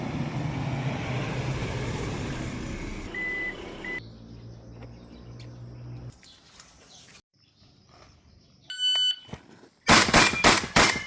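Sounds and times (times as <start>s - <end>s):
vehicle engine rumbling: 0.0s - 6.2s.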